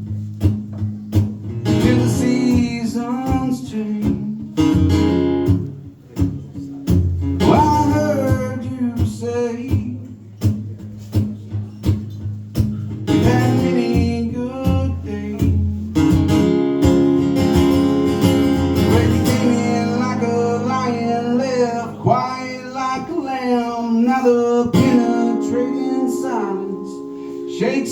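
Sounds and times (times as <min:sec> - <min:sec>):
acoustic guitar strummed and picked: 0:00.0 - 0:27.9
person singing long notes: 0:18.9 - 0:27.9.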